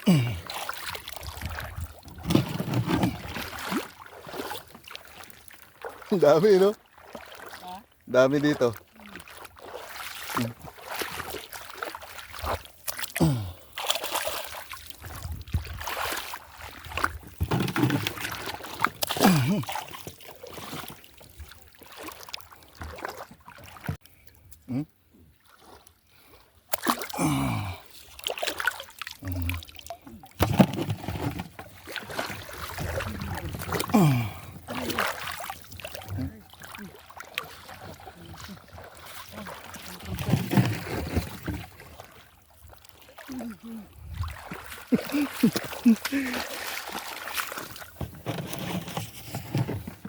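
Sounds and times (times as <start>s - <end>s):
water splashing and sloshing: 0.0s - 50.0s
short voice sounds: 24.6s - 24.9s, 45.2s - 46.5s.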